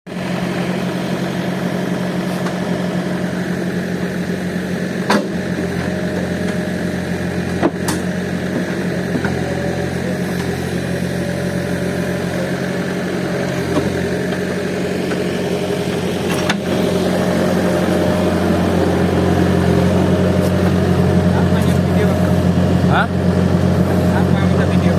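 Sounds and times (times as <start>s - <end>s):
diesel engine running at low revs: 0.1s - 24.9s
sharp engine knocks: 5.0s - 6.6s, 7.5s - 9.6s, 13.6s - 18.6s.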